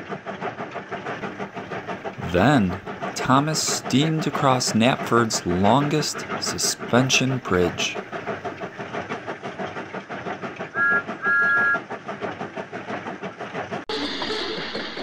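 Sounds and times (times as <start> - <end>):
steam locomotive chuffing: 0.0 - 15.0
two-note steam whistle: 10.8 - 11.8.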